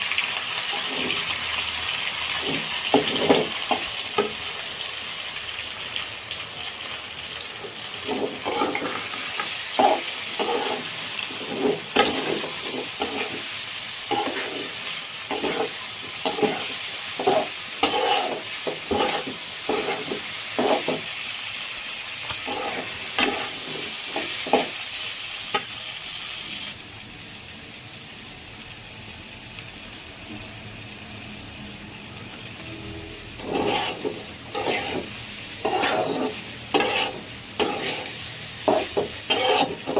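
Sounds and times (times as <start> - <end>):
food sizzling in oil: 0.0 - 39.9
spatula scraping a pan: 0.7 - 1.3, 2.4 - 3.8, 8.0 - 13.5, 14.1 - 21.1, 22.3 - 24.8, 33.4 - 39.9.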